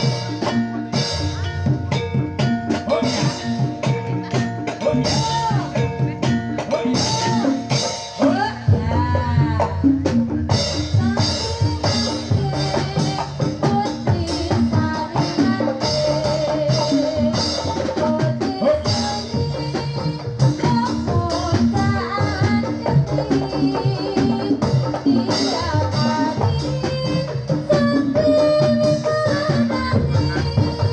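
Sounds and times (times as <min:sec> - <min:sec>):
drums and percussion beat: 0:00.0 - 0:30.9
pitched melody line: 0:00.0 - 0:30.9.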